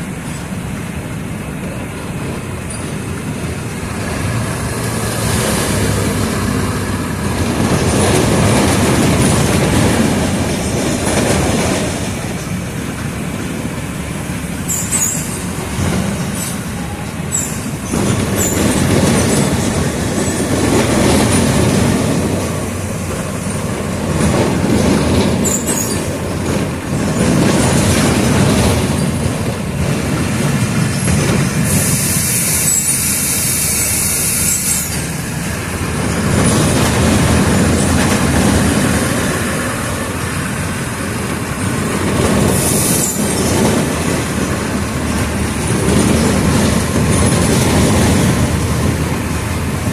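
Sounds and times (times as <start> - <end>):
bus diesel engine surging: 0.0 - 49.9
bus body squeaks and rattles: 2.3 - 12.6, 14.6 - 39.6, 41.3 - 49.9
air hiss: 31.6 - 35.2.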